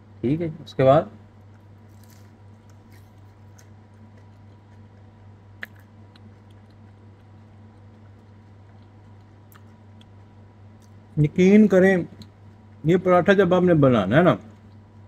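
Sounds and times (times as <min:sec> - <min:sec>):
steady low hum: 0:00.0 - 0:15.0
chewing crisp flatbread: 0:01.3 - 0:11.2, 0:14.4 - 0:15.0.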